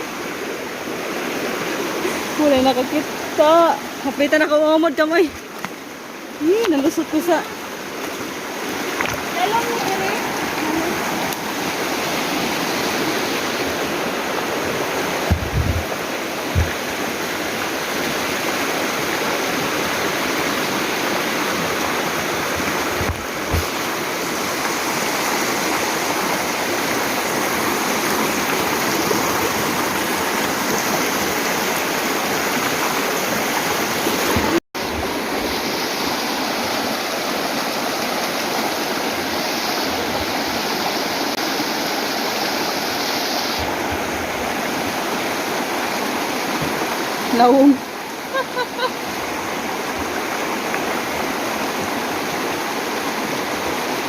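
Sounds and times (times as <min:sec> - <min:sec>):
water rushing in a stream: 0:00.0 - 0:54.0
low thumps: 0:15.2 - 0:16.9.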